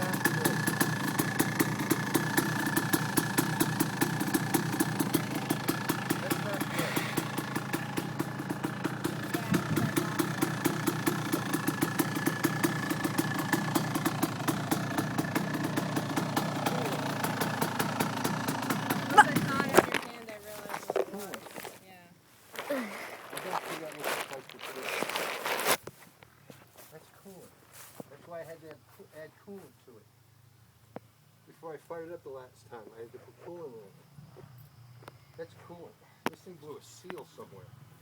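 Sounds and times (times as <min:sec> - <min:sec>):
sharp regular ticking: 0:00.0 - 0:20.0
small engine idling: 0:00.0 - 0:21.7, 0:22.6 - 0:25.7.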